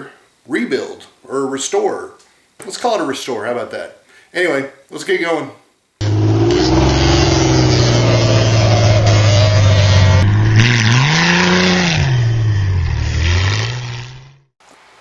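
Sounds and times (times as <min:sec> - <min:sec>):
vehicle engine running and revving: 0:06.0 - 0:14.4.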